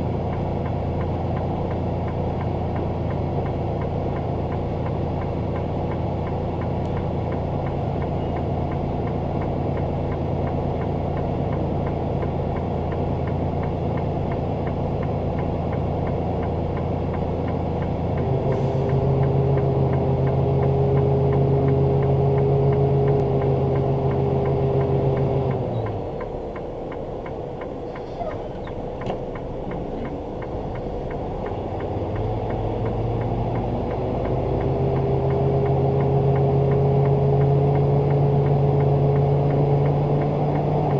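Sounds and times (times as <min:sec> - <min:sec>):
truck diesel engine idling: 0:00.0 - 0:32.7.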